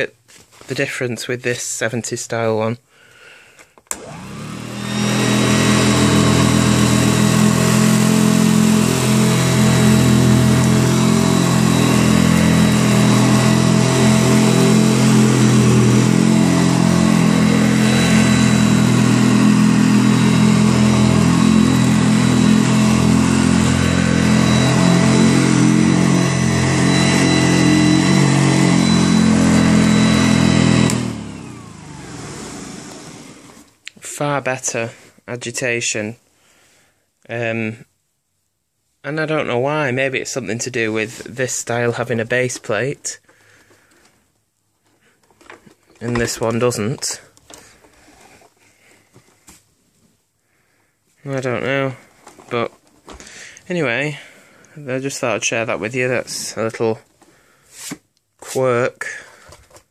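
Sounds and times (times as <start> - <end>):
vacuum cleaner running on carpet: 3.9 - 33.7.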